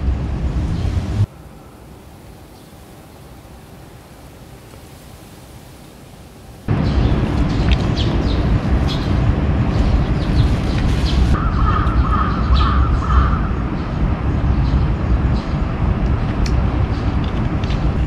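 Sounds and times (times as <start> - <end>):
low outdoor rumble: 0.0 - 4.6, 6.6 - 18.0
bird calling: 10.2 - 13.6.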